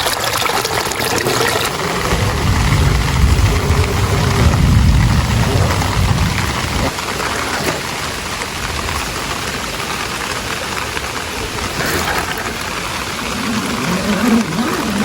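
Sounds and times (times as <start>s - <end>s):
heavy rain hissing: 0.6s - 15.0s
low rumble: 1.6s - 6.9s.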